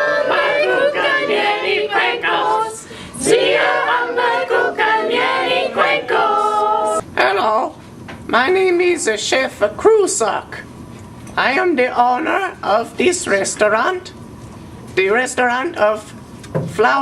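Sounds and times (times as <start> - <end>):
voices singing a cappella: 0.0 - 7.0.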